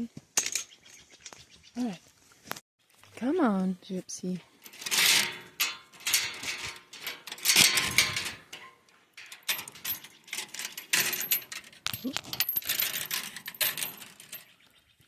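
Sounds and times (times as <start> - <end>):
clinks clatters and knocks: 0.4 - 1.4, 4.4 - 14.7.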